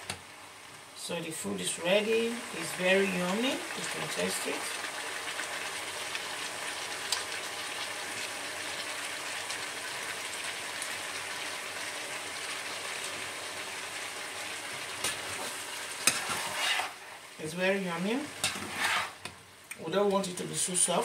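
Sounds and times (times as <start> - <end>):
vegetables sizzling in a frying pan: 0.0 - 21.0.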